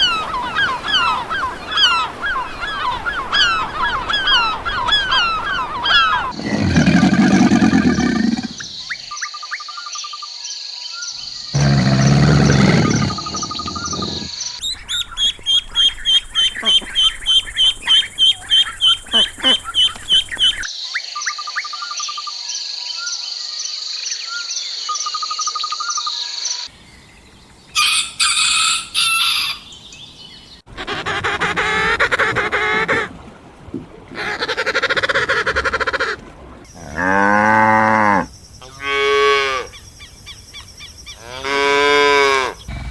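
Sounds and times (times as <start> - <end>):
chicken calls: 0.0 - 9.0, 11.6 - 20.7, 27.7 - 30.1
birds chirping: 0.0 - 9.1, 11.2 - 20.7, 26.7 - 30.7, 39.5 - 41.4, 42.4 - 42.9.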